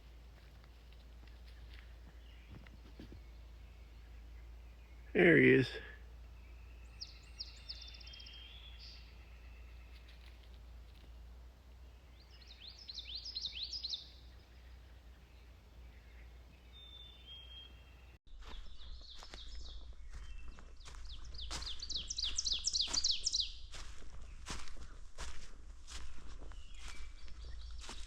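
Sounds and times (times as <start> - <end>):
footsteps on trail: 0.0 - 4.1, 6.9 - 11.3, 18.3 - 28.0
bird singing repeated notes: 1.4 - 10.2, 12.0 - 23.7.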